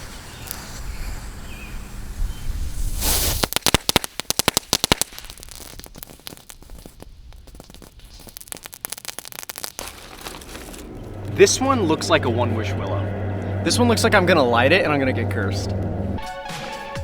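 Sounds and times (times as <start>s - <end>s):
firecrackers cracking and popping: 2.8s - 13.6s
steady low noise: 9.9s - 16.3s.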